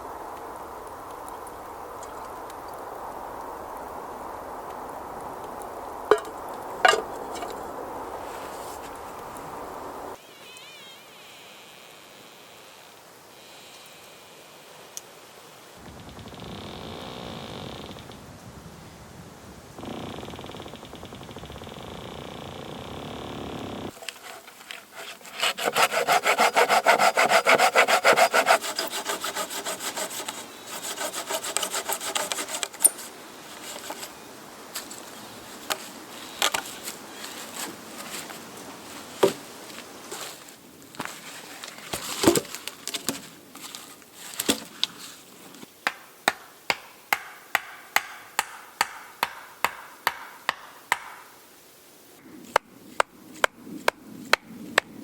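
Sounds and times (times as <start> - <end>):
knocks and scraping: 6.1 - 9.0, 23.9 - 45.7
sharp tool strokes: 24.0 - 34.0
hand saw cutting wood: 24.0 - 34.1.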